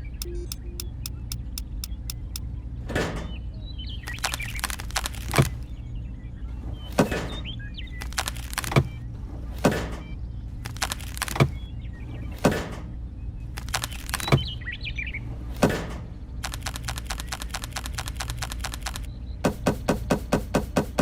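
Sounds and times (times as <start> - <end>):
birds chirping: 0.0 - 2.4
steady low hum: 0.0 - 2.6.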